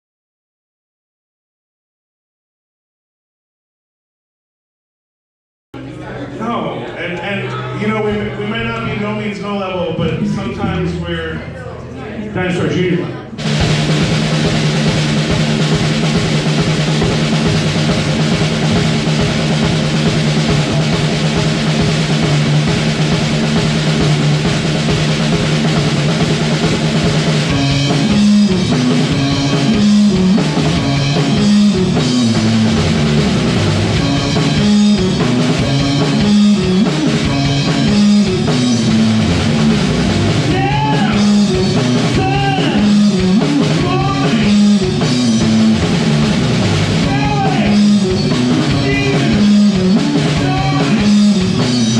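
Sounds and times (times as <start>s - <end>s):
drums with driving beat: 13.4s - 51.9s
person singing: 40.5s - 45.1s, 47.0s - 51.7s.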